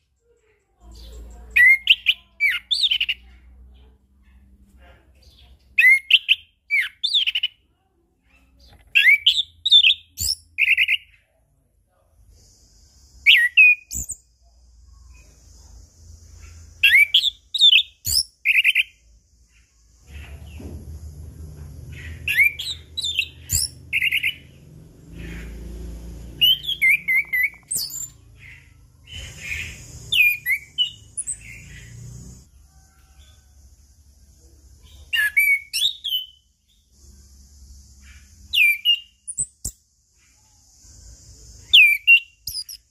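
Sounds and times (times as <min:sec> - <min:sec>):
thrush singing whistled phrases: 0:13.2 - 0:14.2, 0:16.8 - 0:19.0, 0:22.2 - 0:24.5, 0:26.4 - 0:28.2, 0:29.2 - 0:31.9, 0:35.1 - 0:36.4, 0:38.5 - 0:39.8, 0:41.7 - 0:42.9.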